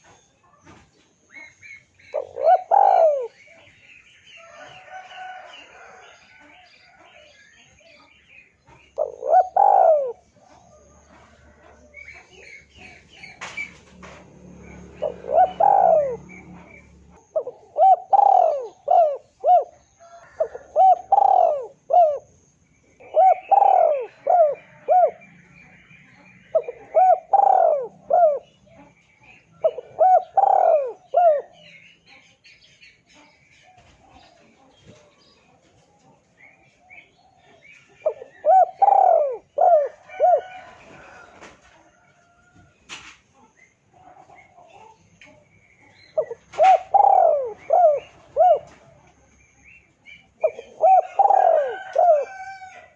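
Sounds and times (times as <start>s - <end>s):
doves cooing: 0.0s - 31.8s, 36.2s - 52.9s
small birds chirping: 0.0s - 52.9s.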